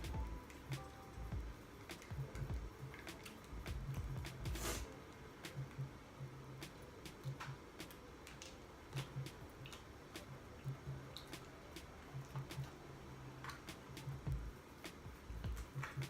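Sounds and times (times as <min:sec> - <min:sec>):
muffled bass beat music: 0:00.0 - 0:02.8, 0:03.6 - 0:04.8, 0:14.0 - 0:14.6, 0:15.3 - 0:16.0.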